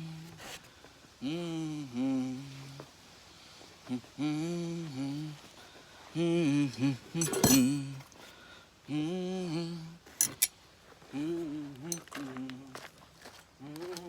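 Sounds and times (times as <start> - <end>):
man humming: 1.2 - 2.8, 3.9 - 5.4, 6.2 - 8.0, 8.9 - 10.0, 11.1 - 12.8
metallic clank: 7.2 - 8.0, 10.2 - 10.5
sharp metal clinks: 7.2 - 8.0, 10.2 - 10.5.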